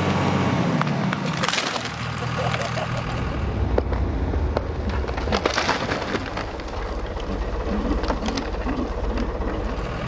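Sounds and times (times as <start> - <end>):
low engine rumble: 0.0 - 10.0
wood cracking and snapping: 0.8 - 2.8, 4.9 - 8.6.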